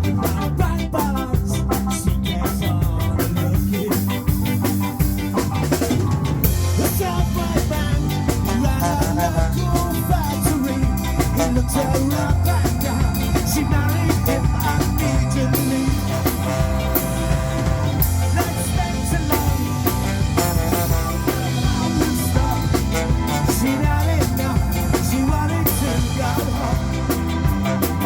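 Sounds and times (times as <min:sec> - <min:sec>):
rock band playing live: 0:00.0 - 0:28.0.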